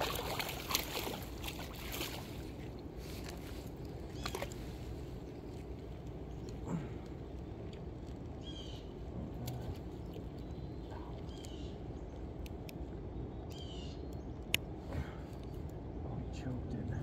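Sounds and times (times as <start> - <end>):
low background noise: 0.0 - 17.0
bird calling: 4.0 - 4.8, 6.3 - 12.2, 13.4 - 14.4.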